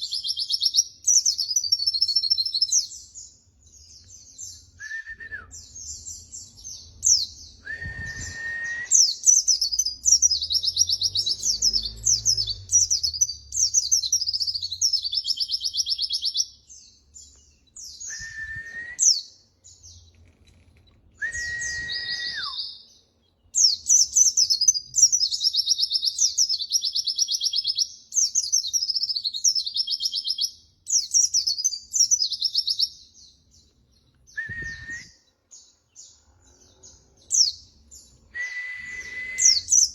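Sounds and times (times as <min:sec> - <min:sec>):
long whistled notes: 0:07.6 - 0:09.0, 0:21.2 - 0:22.6, 0:38.3 - 0:39.7.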